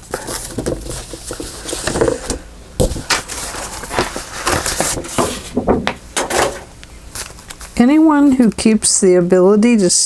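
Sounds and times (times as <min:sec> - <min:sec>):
paper rustling and crinkling: 0:00.0 - 0:07.8.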